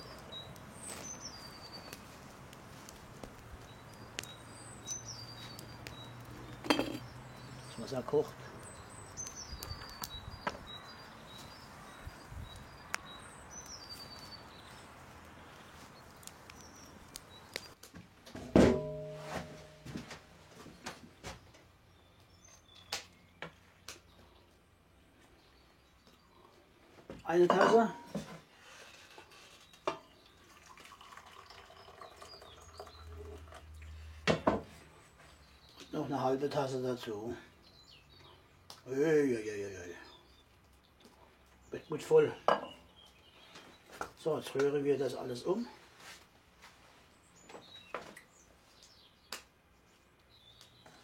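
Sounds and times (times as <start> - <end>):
birds chirping: 0.0 - 17.8, 18.8 - 51.0
water trickling into bowl: 30.1 - 34.0.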